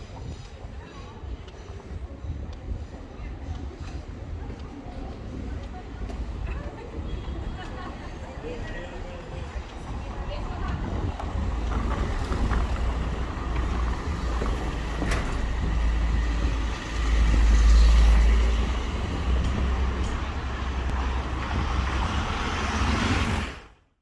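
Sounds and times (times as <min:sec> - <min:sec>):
wind on microphone: 0:00.0 - 0:23.6
traffic: 0:00.0 - 0:24.0
deep steady rumble: 0:09.6 - 0:23.5.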